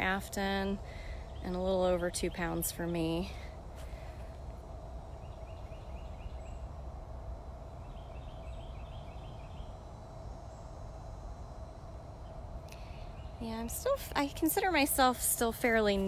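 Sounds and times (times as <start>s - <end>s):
faint steady hum: 0.0s - 16.0s
bird chirping: 5.1s - 6.7s, 7.8s - 9.8s.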